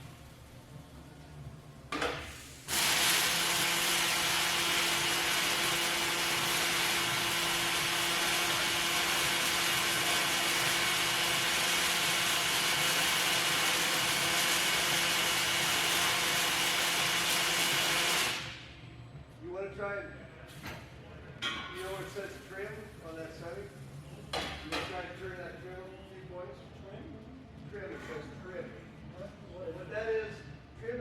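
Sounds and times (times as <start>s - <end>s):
welding arc hissing: 2.1s - 18.6s.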